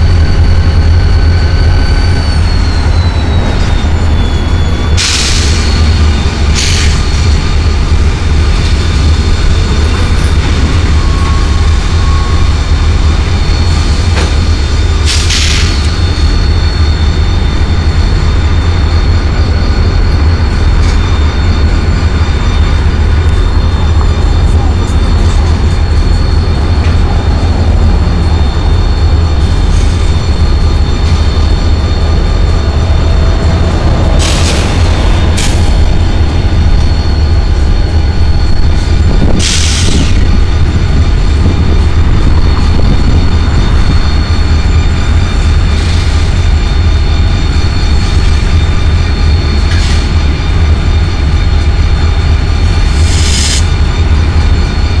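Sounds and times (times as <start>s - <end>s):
wheel squeal: 0.0s - 7.1s, 8.7s - 51.9s
freight train rumbling: 0.0s - 55.0s.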